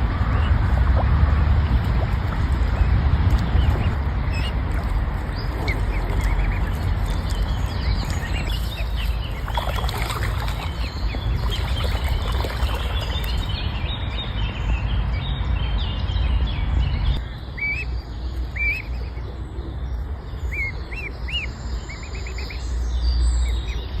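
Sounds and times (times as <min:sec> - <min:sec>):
steady low rumble: 0:00.0 - 0:20.5
birds chirping and calling: 0:01.8 - 0:14.2.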